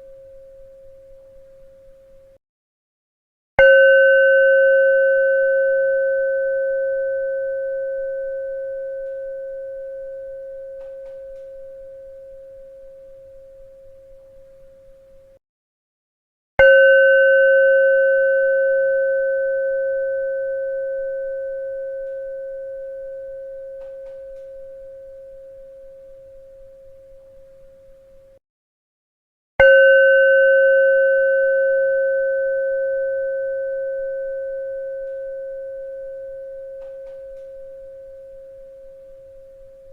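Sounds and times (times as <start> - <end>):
low-pitched bell ringing: 3.6 - 14.8, 29.6 - 39.9.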